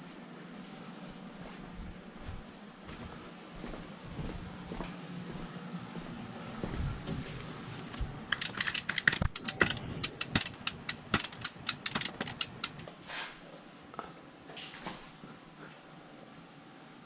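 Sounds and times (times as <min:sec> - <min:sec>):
ratchet clicking: 0:08.3 - 0:12.9.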